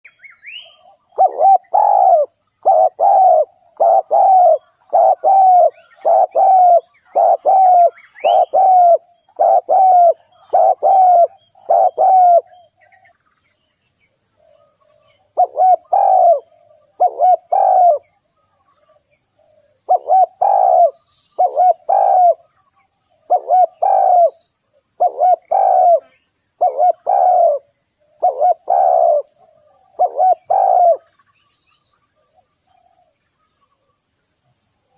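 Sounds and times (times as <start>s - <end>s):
dove cooing: 0.6s - 13.1s, 14.5s - 18.2s, 19.4s - 22.5s, 23.2s - 24.4s, 25.0s - 31.2s.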